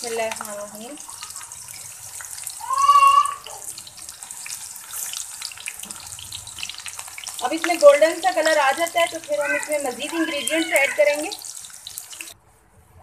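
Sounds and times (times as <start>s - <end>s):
onions frying in hot oil: 0.0s - 12.4s
short high-pitched cry: 2.6s - 3.6s.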